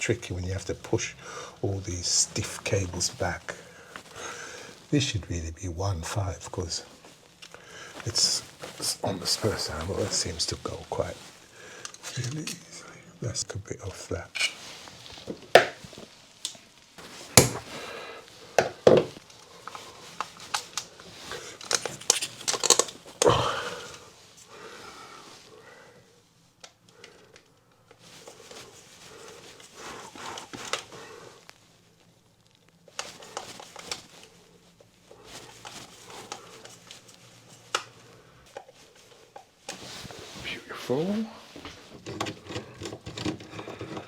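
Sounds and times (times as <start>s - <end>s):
stiff cables being handled: 0.0s - 25.5s, 26.4s - 44.0s
hand tools clicking and knocking: 42.0s - 44.0s.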